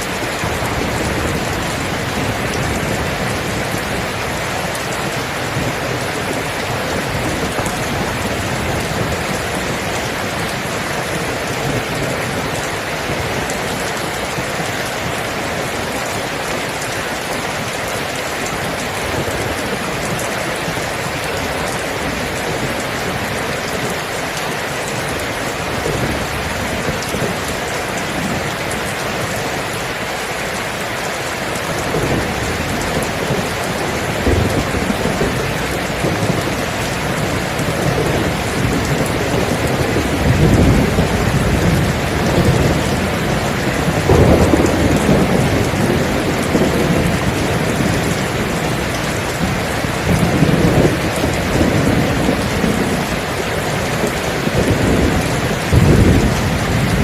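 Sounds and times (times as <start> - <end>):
rolling thunder: 0.0 - 17.7, 31.6 - 57.0
heavy rain: 0.0 - 57.0.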